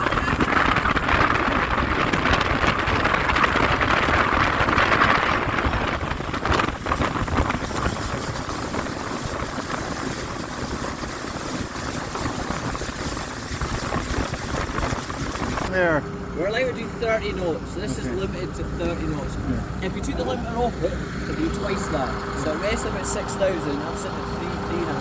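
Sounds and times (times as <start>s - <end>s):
wind buffeting on microphone: 0.0s - 15.7s
speedboat engine and hull rush: 0.0s - 25.0s.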